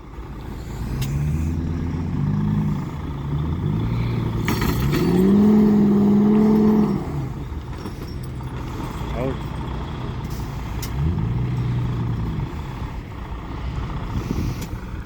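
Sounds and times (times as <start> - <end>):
truck engine revving: 0.0 - 15.0
clatter of knocks: 4.4 - 5.6.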